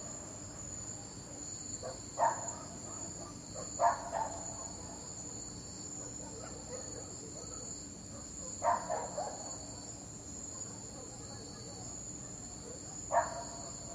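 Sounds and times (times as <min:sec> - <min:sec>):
dog barking: 0:01.8 - 0:05.4, 0:06.0 - 0:09.9, 0:10.5 - 0:13.9.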